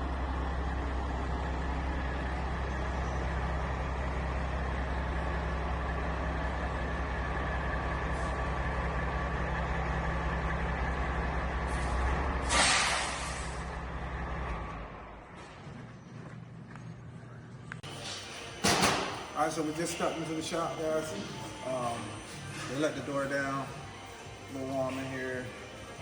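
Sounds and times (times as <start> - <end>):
diesel truck engine idling: 0.0 - 26.0
air brakes hissing: 11.6 - 13.7.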